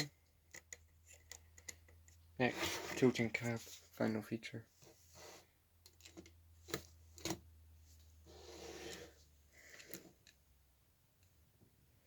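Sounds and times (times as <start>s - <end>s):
soft rubbing scrape: 2.4s - 4.0s, 4.8s - 5.6s, 8.2s - 9.3s.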